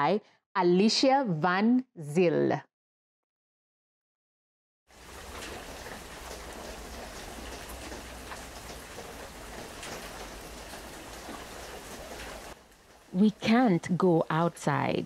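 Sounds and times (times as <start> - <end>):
steady rain falling: 4.9 - 15.0.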